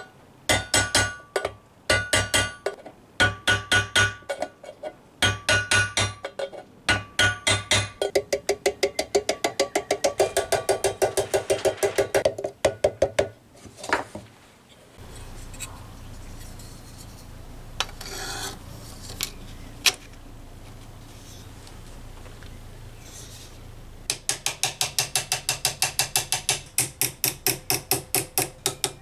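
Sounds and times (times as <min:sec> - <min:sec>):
hammer tapping sheet metal: 0:00.5 - 0:04.5, 0:05.2 - 0:13.3, 0:24.1 - 0:29.0
low steady hum: 0:06.8 - 0:29.0.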